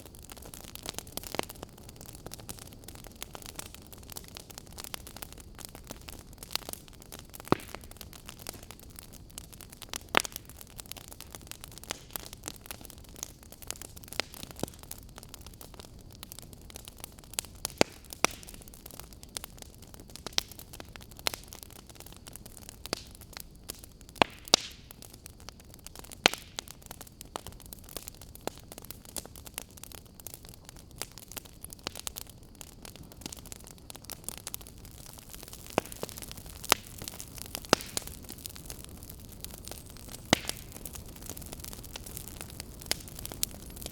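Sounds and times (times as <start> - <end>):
fire crackling: 0.0 - 43.9
soft steady hiss: 0.0 - 43.9.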